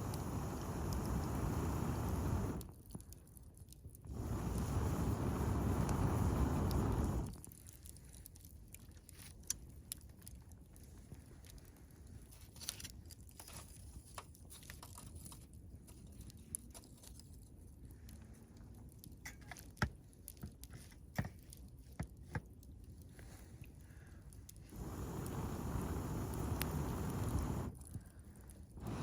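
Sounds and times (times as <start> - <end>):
wood fire crackling and popping: 0.0 - 29.0
low steady rumble: 23.0 - 29.0.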